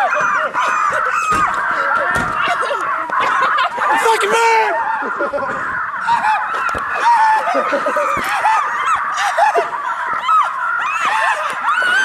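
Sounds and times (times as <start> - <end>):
flock of birds honking: 0.0 - 12.0.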